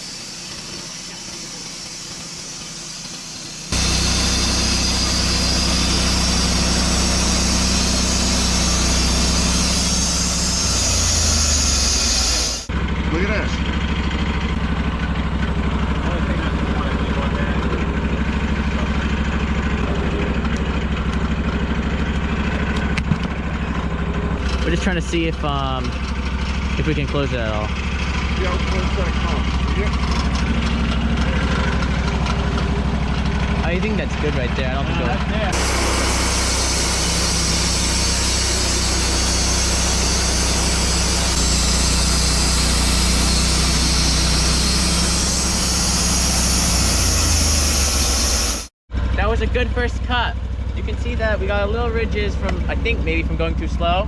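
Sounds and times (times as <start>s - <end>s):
saw blade cutting log: 0.0s - 12.7s, 33.6s - 48.7s
sawmill engine pulsing: 0.0s - 54.0s.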